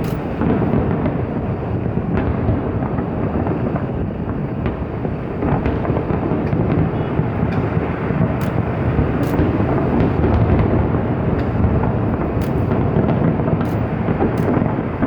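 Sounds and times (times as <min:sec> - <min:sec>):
fireworks shells bursting: 0:00.0 - 0:02.3, 0:05.5 - 0:15.0
sharp firework crackles: 0:00.0 - 0:15.0.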